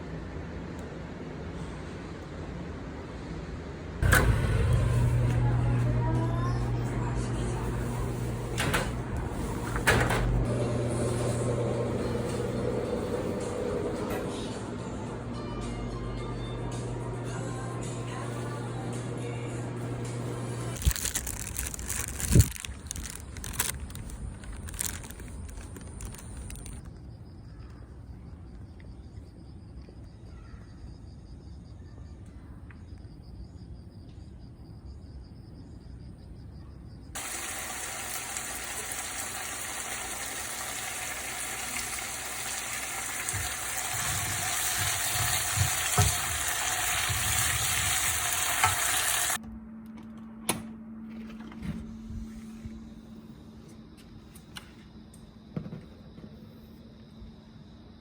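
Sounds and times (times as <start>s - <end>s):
food sizzling in a frying pan: 37.2s - 49.4s.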